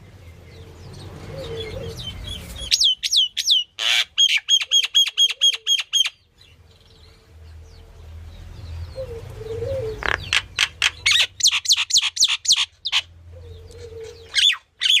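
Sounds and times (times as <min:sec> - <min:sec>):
myna calling: 0:01.3 - 0:06.2, 0:09.0 - 0:15.0.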